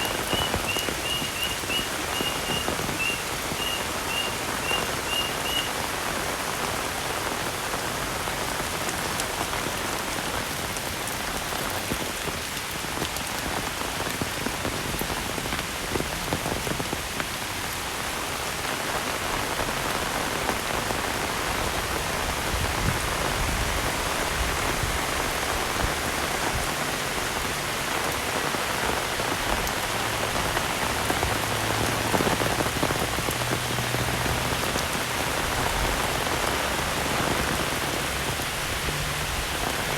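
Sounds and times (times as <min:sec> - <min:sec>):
short high chirps: 0:00.0 - 0:05.7
heavy rain falling: 0:00.0 - 0:39.9.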